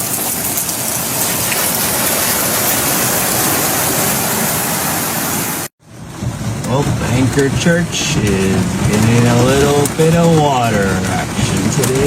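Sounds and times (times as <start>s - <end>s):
rushing water: 0.0s - 5.7s, 6.6s - 12.0s.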